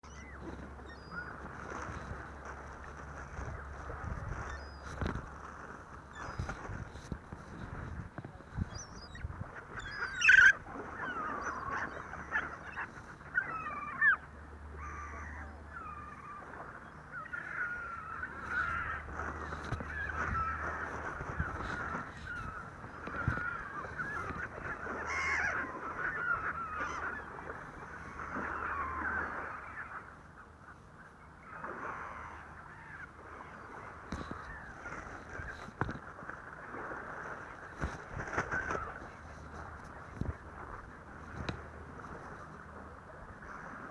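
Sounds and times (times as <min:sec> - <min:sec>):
flock of birds calling: 0:00.0 - 0:02.6, 0:03.2 - 0:05.1, 0:08.6 - 0:30.1.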